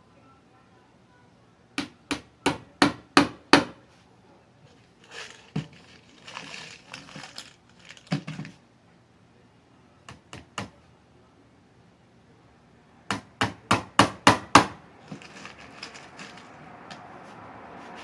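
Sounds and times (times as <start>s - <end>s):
rustling handling noise: 3.9s - 8.6s, 15.0s - 18.0s
hammer knocking on wood: 13.1s - 14.8s.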